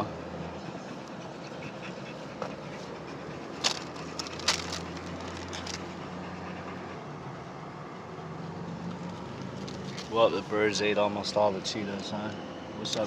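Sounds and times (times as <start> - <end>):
vehicle engine humming: 0.0 - 13.0
sharp clicks and crackles: 3.6 - 5.9.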